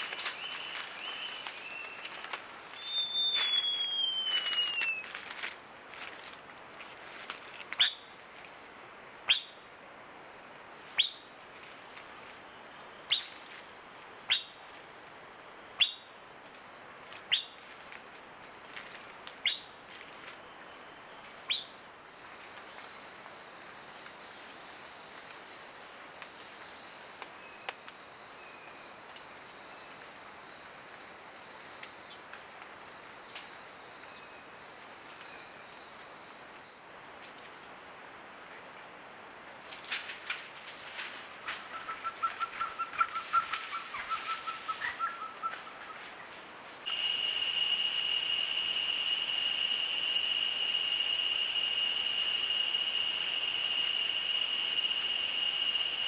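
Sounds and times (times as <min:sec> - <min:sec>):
faint bird chirps: 0:00.0 - 0:05.0
steady hiss: 0:00.0 - 0:15.8, 0:16.5 - 0:56.0
bird whistled call falling in pitch: 0:02.8 - 0:05.1.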